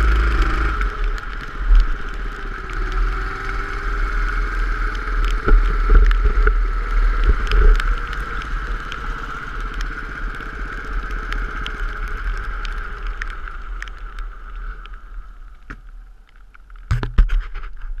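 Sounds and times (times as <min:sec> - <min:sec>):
scattered ticks: 0:00.0 - 0:04.0, 0:04.8 - 0:17.0
go-kart engine running: 0:00.0 - 0:13.6
low wind rumble: 0:00.0 - 0:17.2.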